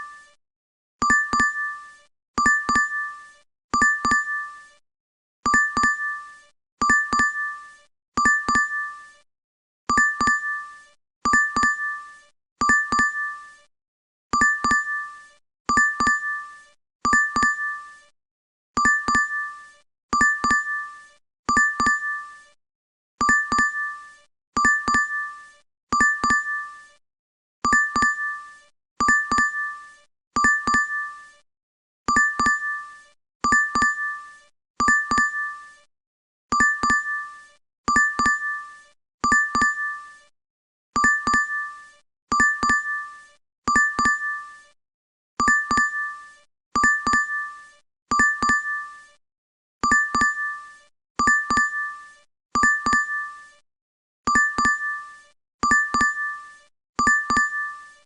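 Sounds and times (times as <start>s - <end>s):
two-tone notification ding: 1.0s - 1.7s, 3.8s - 4.4s, 6.8s - 7.4s, 9.9s - 10.6s, 11.3s - 11.9s, 12.6s - 13.3s, 14.4s - 15.0s, 17.1s - 17.7s, 21.5s - 22.2s, 23.2s - 23.9s, 24.6s - 25.2s, 26.0s - 26.6s, 27.7s - 28.2s, 29.0s - 29.6s, 30.4s - 31.0s, 32.1s - 32.7s, 33.5s - 34.1s, 41.0s - 41.6s, 42.3s - 43.0s, 43.7s - 44.4s, 45.4s - 46.0s, 46.8s - 47.4s, 48.1s - 48.8s, 49.8s - 50.4s, 51.2s - 51.8s, 52.6s - 53.2s, 54.3s - 54.9s, 55.6s - 56.3s, 57.0s - 57.7s.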